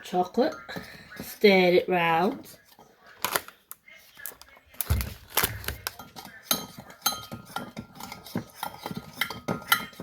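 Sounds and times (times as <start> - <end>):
spoon clinking in a cup: 5.8 - 10.0.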